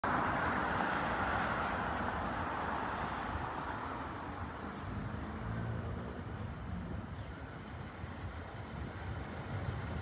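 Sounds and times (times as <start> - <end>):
road traffic rushing: 0.0 - 10.0
train diesel engine hum: 6.2 - 10.0.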